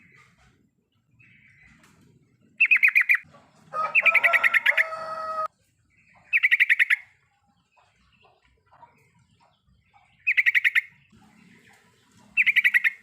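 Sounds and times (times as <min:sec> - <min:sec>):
bird chattering: 0:02.6 - 0:03.3, 0:06.1 - 0:13.0.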